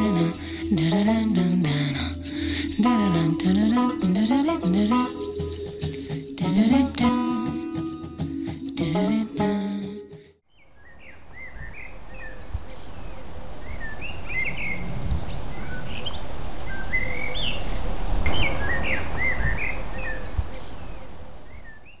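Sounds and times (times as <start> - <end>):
jingly music: 0.0 - 10.4.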